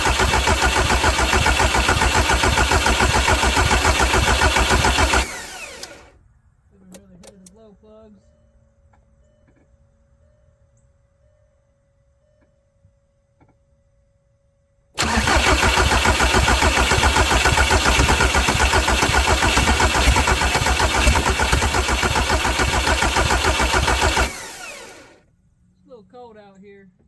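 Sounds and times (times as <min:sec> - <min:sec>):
engine cranking by starter: 0:00.0 - 0:06.2, 0:15.0 - 0:25.2.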